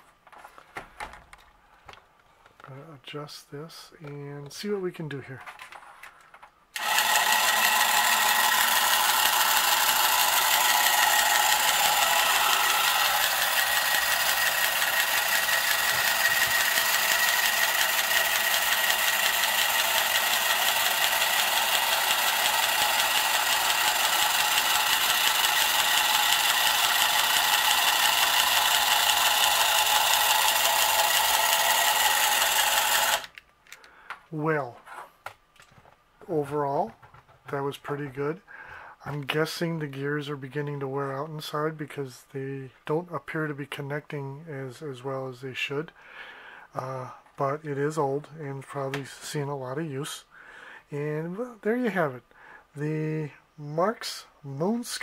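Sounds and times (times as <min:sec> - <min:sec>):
toy helicopter motor whirring: 0:06.8 - 0:33.4.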